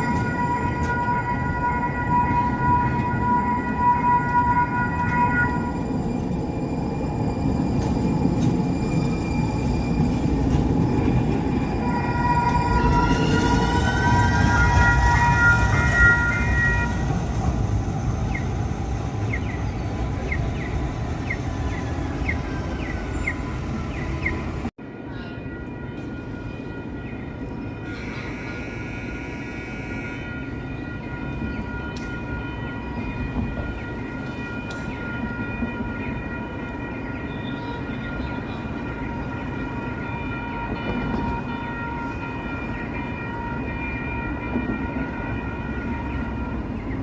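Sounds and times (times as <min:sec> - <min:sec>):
train horn: 0:00.0 - 0:05.8, 0:11.8 - 0:17.3, 0:25.7 - 0:46.7
train rumble: 0:00.0 - 0:47.0
train bell dings: 0:24.8 - 0:46.8.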